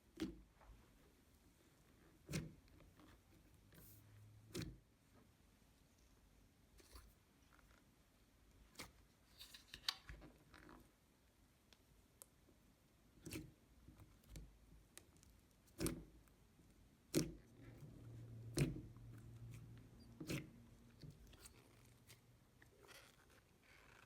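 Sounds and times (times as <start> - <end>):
slime squishing: 13.1 - 24.0.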